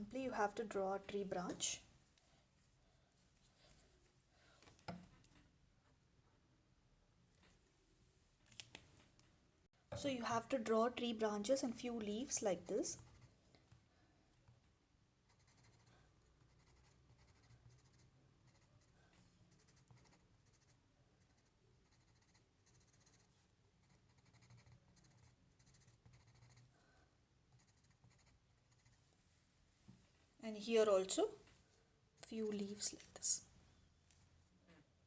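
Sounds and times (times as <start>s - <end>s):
marker scratching on paper: 12.6s - 13.4s, 15.3s - 19.0s, 19.6s - 26.7s, 27.6s - 29.0s.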